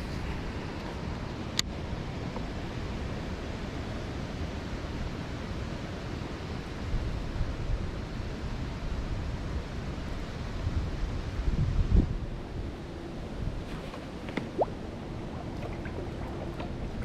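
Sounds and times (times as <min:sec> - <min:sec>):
strong wind on microphone: 0:06.9 - 0:13.9.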